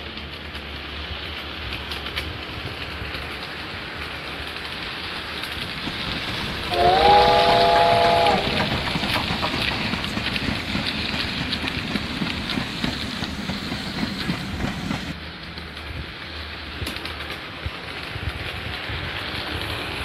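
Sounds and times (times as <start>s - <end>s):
model train wheels rumbling and clicking: 0.0s - 20.0s
steam train whistle chord: 6.7s - 8.8s.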